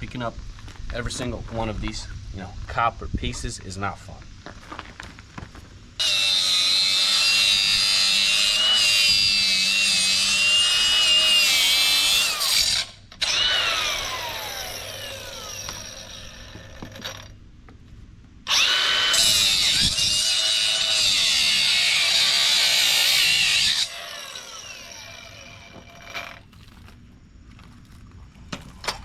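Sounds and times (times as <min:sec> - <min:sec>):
power tool cutting metal whining: 0:06.0 - 0:17.3, 0:18.5 - 0:26.4
power tool spinning down: 0:06.0 - 0:17.3, 0:18.5 - 0:26.4.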